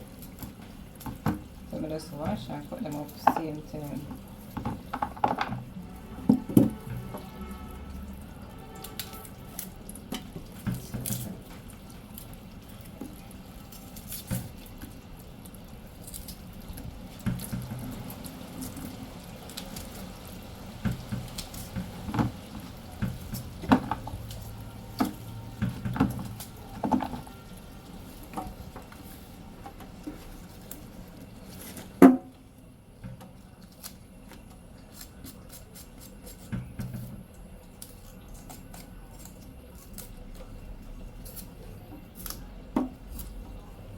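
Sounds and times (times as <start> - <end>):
water dripping and splashing: 0.0 - 31.5.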